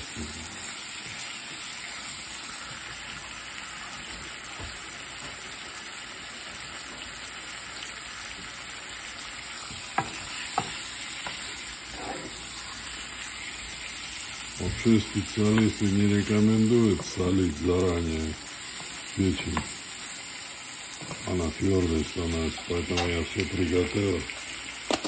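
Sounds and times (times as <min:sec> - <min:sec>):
liver and onions sizzling in a pan: 0:00.0 - 0:25.0
wooden spoon stirring: 0:14.8 - 0:17.4.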